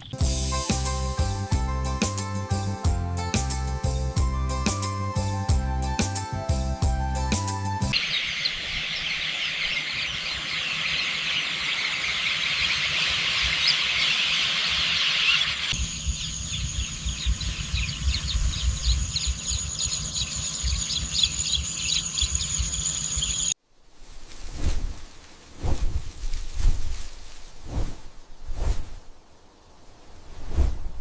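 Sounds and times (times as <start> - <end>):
chorus of chirping birds: 7.9 - 23.6.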